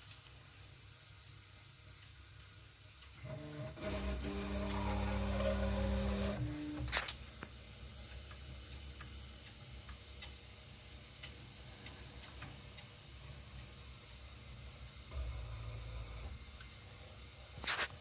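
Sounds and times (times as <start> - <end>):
faint irregular ticks: 6.9 - 14.0.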